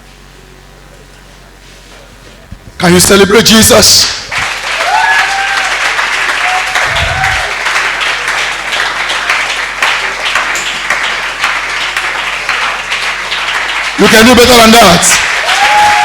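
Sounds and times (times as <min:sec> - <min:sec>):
congregation clapping: 0:04.2 - 0:16.0
people cheering: 0:04.3 - 0:16.0.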